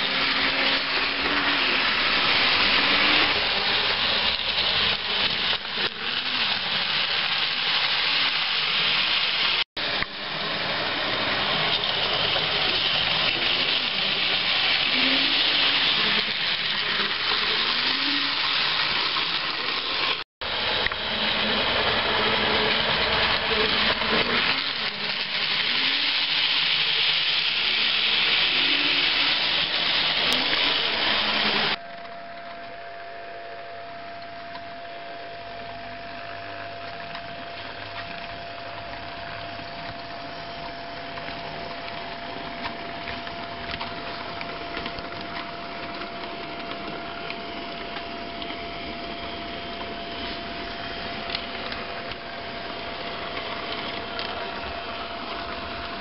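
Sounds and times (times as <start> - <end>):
wheels clicking on track: 0.0 - 32.6, 35.6 - 56.0
model train motor whine: 0.0 - 32.8, 33.4 - 56.0.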